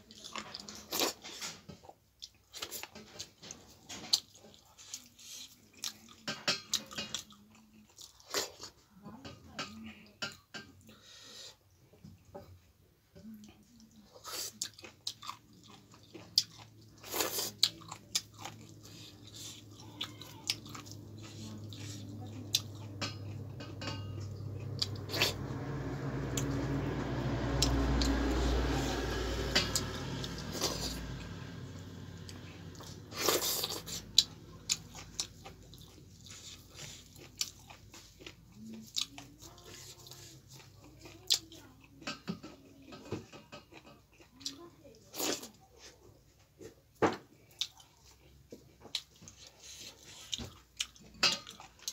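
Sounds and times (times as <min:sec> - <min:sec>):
chewing and biting food: 0:00.0 - 0:08.8, 0:13.5 - 0:26.6, 0:27.2 - 0:51.9
low rumbling noise: 0:20.9 - 0:33.2.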